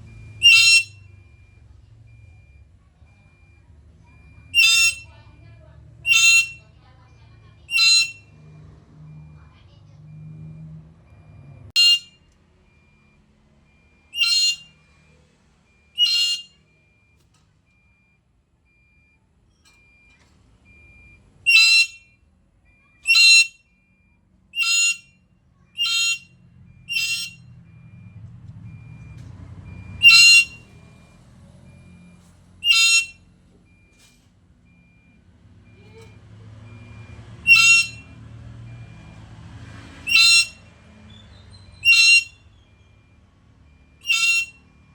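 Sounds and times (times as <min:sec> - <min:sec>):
parrot calling: 0:00.4 - 0:01.0, 0:04.5 - 0:05.1, 0:06.0 - 0:06.6, 0:07.7 - 0:08.3, 0:11.8 - 0:12.1, 0:14.1 - 0:14.7, 0:16.0 - 0:16.5, 0:21.5 - 0:22.0, 0:23.0 - 0:23.6, 0:24.6 - 0:25.1, 0:25.8 - 0:27.4, 0:30.0 - 0:30.7, 0:32.6 - 0:33.2, 0:35.9 - 0:38.1, 0:40.0 - 0:42.6, 0:44.0 - 0:44.6.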